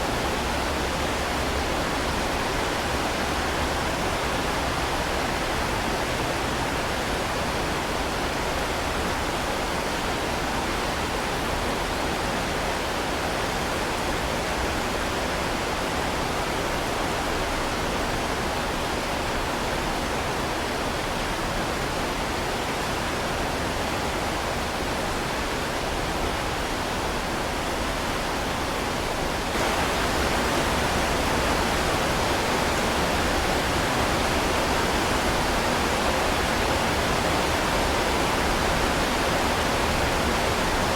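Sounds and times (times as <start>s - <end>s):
heavy rain falling: 27.0s - 40.9s.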